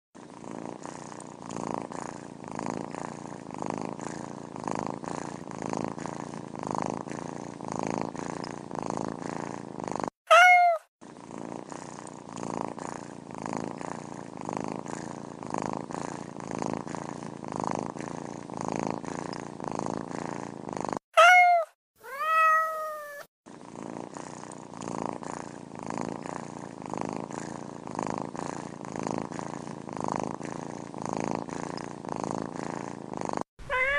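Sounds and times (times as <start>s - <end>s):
cat purring: 0.2s - 33.9s
cat meowing: 10.3s - 10.9s, 21.2s - 23.3s, 33.6s - 33.9s.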